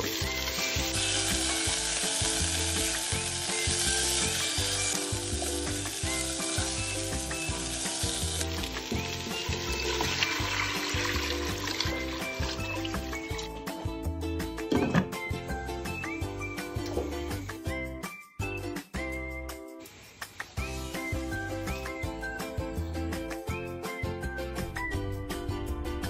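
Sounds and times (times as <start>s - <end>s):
water pouring into pot: 0.0s - 13.6s
chicken sizzling in hot oil: 0.0s - 13.8s.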